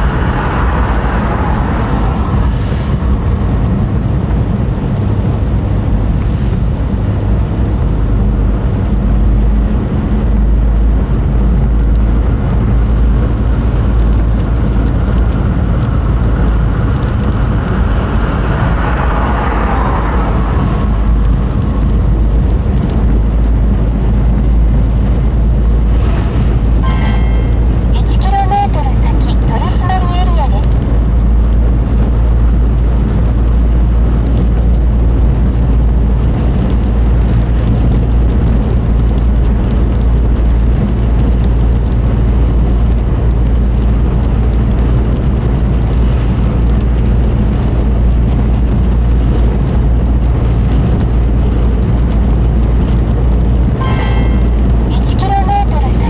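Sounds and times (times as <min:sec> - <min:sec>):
tyres hissing on road: 0:00.0 - 0:03.6, 0:16.2 - 0:21.4
road and engine rumble: 0:00.0 - 0:56.0.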